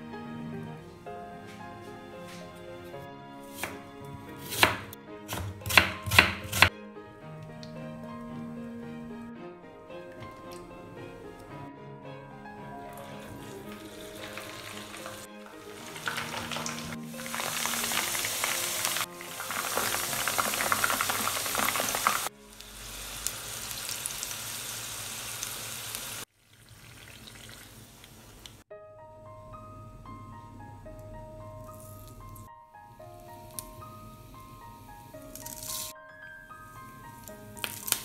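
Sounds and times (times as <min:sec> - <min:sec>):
background music: 0:00.0 - 0:23.0, 0:28.7 - 0:38.0
okra sizzling in oil: 0:13.0 - 0:28.6, 0:35.1 - 0:35.9, 0:37.2 - 0:38.0.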